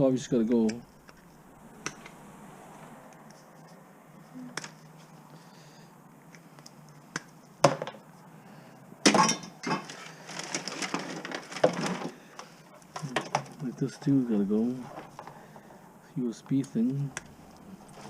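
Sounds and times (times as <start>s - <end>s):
device parts clattering: 9.0s - 13.9s.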